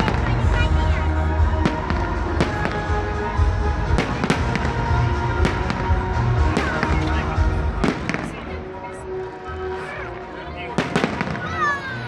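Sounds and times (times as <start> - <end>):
fireworks bangs: 1.4 - 8.8, 10.8 - 11.6.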